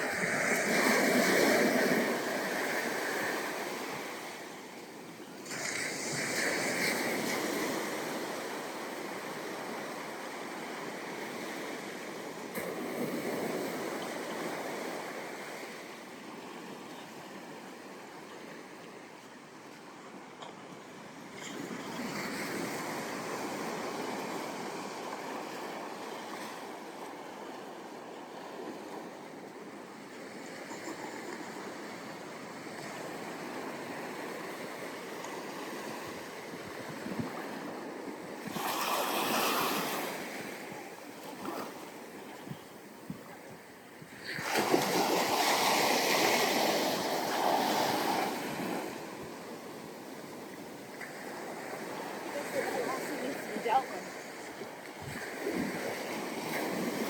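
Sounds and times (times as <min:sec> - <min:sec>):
ocean surf breaking: 0:00.0 - 0:04.8, 0:21.5 - 0:57.0.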